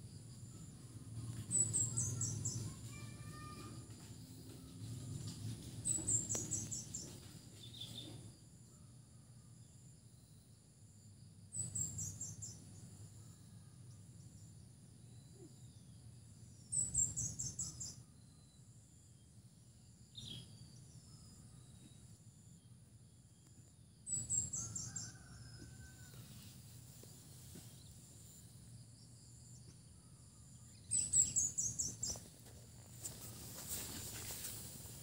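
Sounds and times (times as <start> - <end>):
small bird singing: 0.5 - 3.6, 5.7 - 8.3, 11.5 - 13.7, 16.6 - 18.6, 20.1 - 21.7, 29.0 - 34.6.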